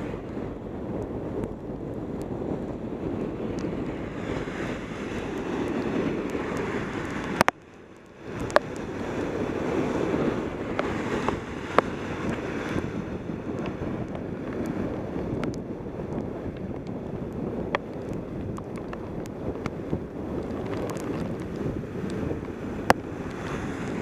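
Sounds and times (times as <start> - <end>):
wind rushing over microphone: 0.0 - 24.0
tyres hissing on wet road: 3.8 - 14.0, 22.5 - 24.0.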